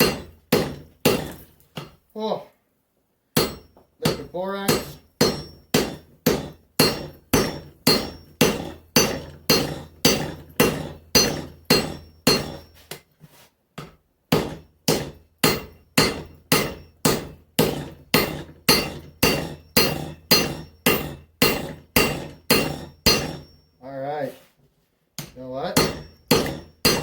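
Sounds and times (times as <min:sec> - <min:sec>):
hammer ringing on anvil: 0:00.0 - 0:01.4, 0:03.4 - 0:12.8, 0:14.4 - 0:23.8, 0:25.2 - 0:27.0.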